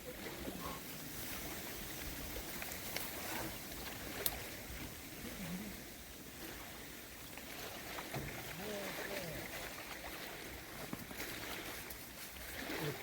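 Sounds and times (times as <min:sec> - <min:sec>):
wind rumbling on microphone: 0:00.0 - 0:08.6
small waves washing at shore: 0:00.0 - 0:13.0.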